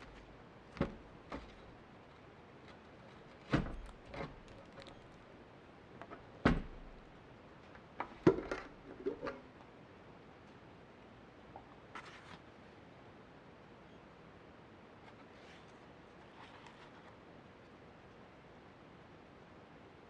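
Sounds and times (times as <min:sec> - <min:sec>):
objects knocking and clunking: 0:00.0 - 0:01.7, 0:08.0 - 0:09.4.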